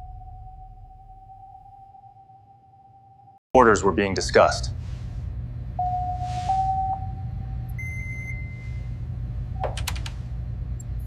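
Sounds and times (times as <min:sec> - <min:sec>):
low rumbling drone: 0:00.0 - 0:03.4, 0:04.7 - 0:09.6
sonar-like ping: 0:00.0 - 0:03.4, 0:05.8 - 0:08.7
electronic beeps: 0:05.8 - 0:08.8.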